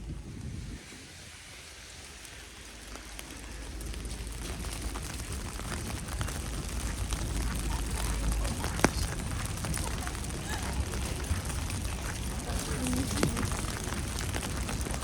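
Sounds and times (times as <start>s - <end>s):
low rumble: 0.0s - 15.0s
wet snow pattering: 0.0s - 15.0s.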